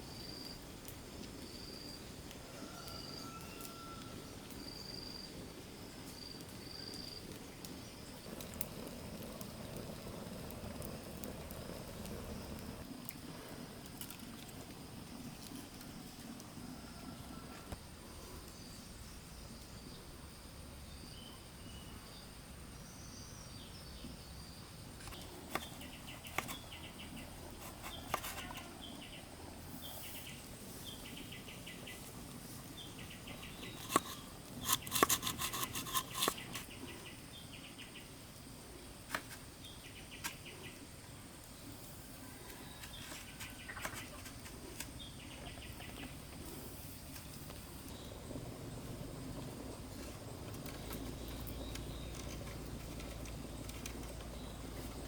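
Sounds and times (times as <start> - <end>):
insects whining: 1.4 - 13.9, 14.5 - 55.0
birds chirping trills: 32.8 - 38.0.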